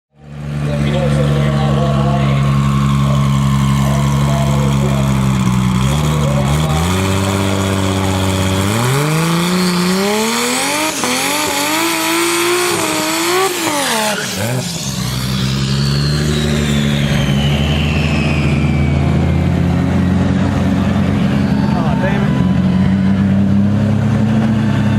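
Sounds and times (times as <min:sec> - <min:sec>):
high turbo whine: 0:00.1 - 0:24.9
truck engine accelerating hard: 0:00.1 - 0:24.9
engine idling: 0:00.2 - 0:10.3.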